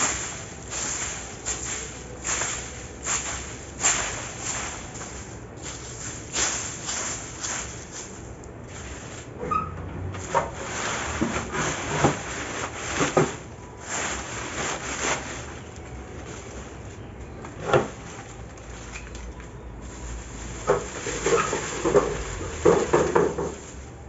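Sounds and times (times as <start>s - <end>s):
scraping and knocking: 0.0s - 19.2s, 19.8s - 24.0s.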